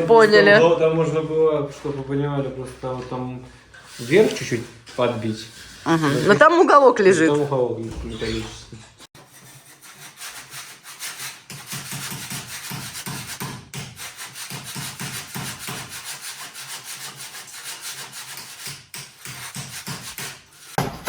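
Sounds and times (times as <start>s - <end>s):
rasp scraping wood: 3.8s - 6.6s, 7.9s - 21.0s.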